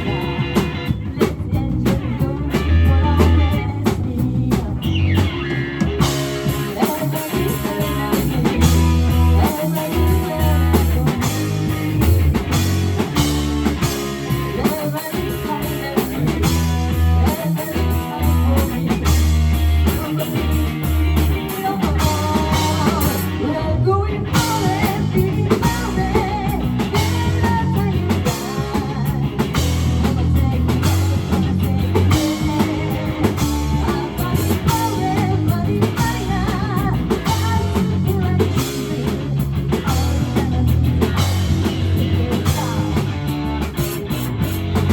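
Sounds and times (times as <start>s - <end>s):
person singing: 0.0s - 12.2s, 12.9s - 43.7s
bass guitar: 0.0s - 44.9s
drum kit: 0.0s - 44.9s
electric guitar: 0.0s - 44.9s.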